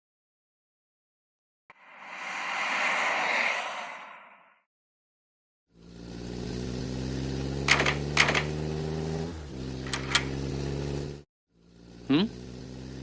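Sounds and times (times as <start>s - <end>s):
car engine running: 5.7s - 13.0s.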